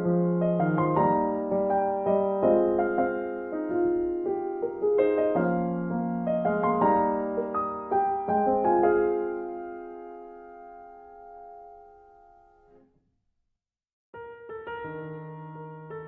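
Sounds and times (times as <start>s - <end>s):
gentle piano melody: 0.0s - 12.9s, 14.2s - 16.0s.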